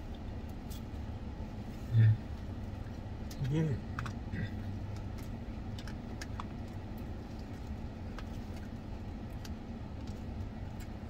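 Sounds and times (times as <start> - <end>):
car cabin hum: 0.0 - 11.0
person chewing salad: 2.4 - 11.0.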